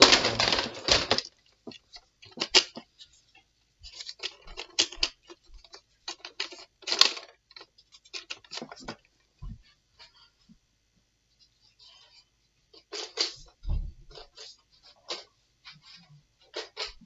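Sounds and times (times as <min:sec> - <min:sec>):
plastic toy gun clicks and rattles: 0:00.0 - 0:02.9, 0:03.9 - 0:09.1, 0:12.8 - 0:13.5, 0:14.1 - 0:15.3, 0:16.4 - 0:17.0.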